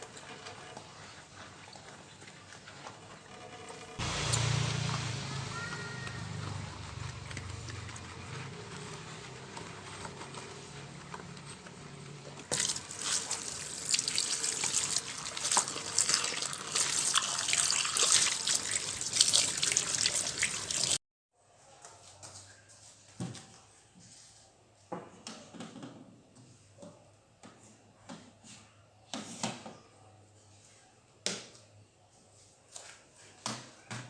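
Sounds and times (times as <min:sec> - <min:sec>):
tap water running and splashing: 0:12.4 - 0:21.0.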